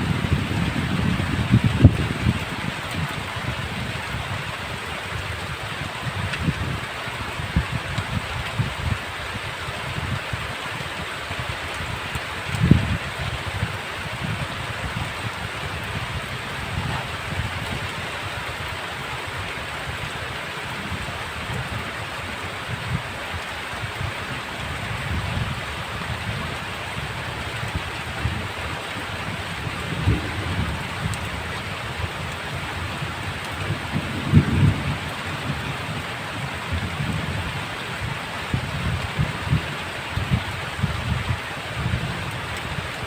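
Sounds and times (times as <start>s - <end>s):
thunder rumbles: 0.0s - 4.4s, 12.6s - 18.3s, 24.4s - 43.0s
heavy rain: 0.0s - 43.0s.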